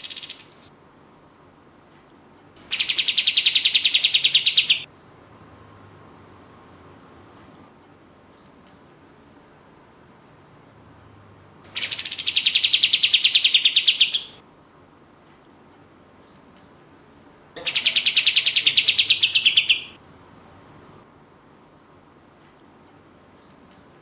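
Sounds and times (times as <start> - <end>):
songbird rapid trills: 0.0 - 0.6, 2.7 - 4.9, 11.7 - 14.4, 17.6 - 20.0.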